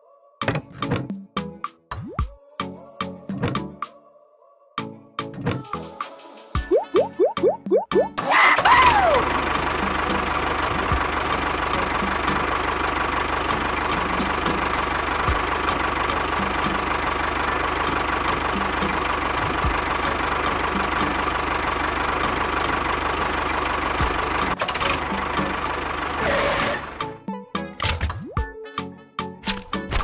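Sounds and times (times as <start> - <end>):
tractor engine running with knocking: 8.6 - 27.1.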